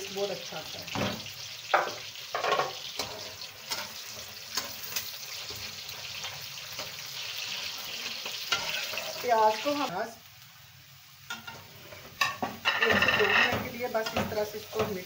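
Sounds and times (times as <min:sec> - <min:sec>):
food sizzling in oil: 0:00.0 - 0:15.0
wooden spoon scraping a pan: 0:08.2 - 0:09.4, 0:11.3 - 0:15.0.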